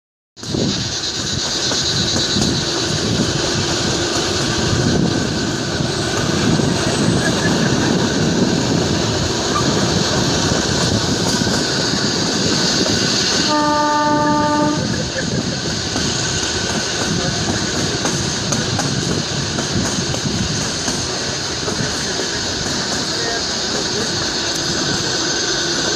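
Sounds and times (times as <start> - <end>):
train wheels rumbling on rails: 0.4 - 25.9
train horn blast: 13.4 - 15.0.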